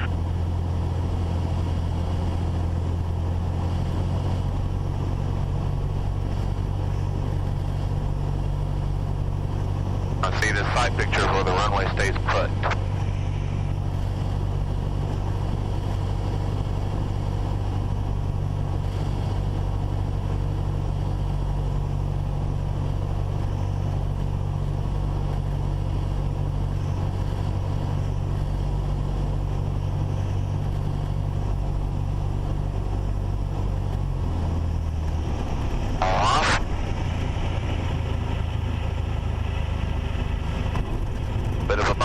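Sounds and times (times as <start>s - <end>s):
propeller plane engine droning: 0.0s - 42.0s.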